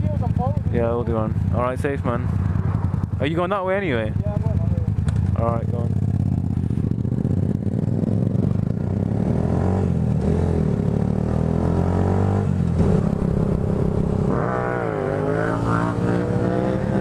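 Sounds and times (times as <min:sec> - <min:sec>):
vehicle engine accelerating: 0:07.0 - 0:17.0.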